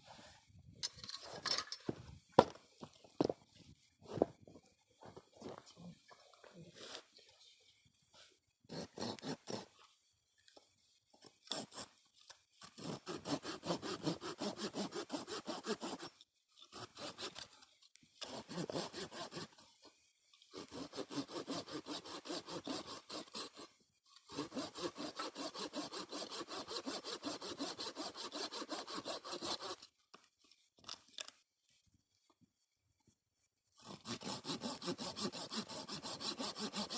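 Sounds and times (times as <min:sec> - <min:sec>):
hand saw cutting wood: 0:08.7 - 0:09.8, 0:11.5 - 0:11.9, 0:12.6 - 0:17.6, 0:18.2 - 0:19.6, 0:20.5 - 0:29.9, 0:33.8 - 0:36.9.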